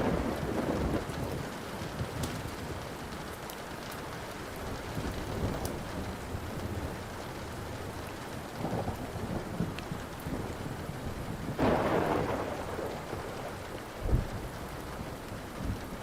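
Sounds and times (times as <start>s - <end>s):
low rolling thunder: 0.0s - 3.3s, 4.4s - 16.0s
steady rain: 0.0s - 16.0s
wood fire crackling: 0.0s - 16.0s.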